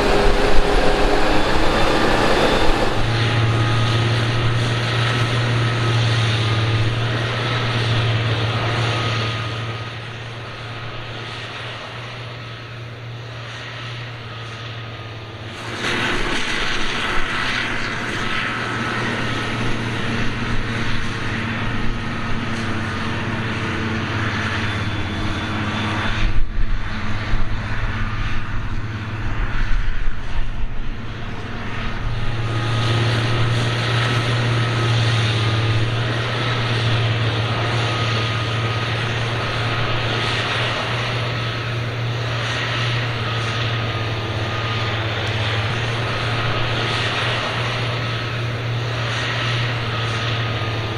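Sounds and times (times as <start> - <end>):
thin high whine: 0.0 - 5.9
harvester engine drone: 0.0 - 50.9.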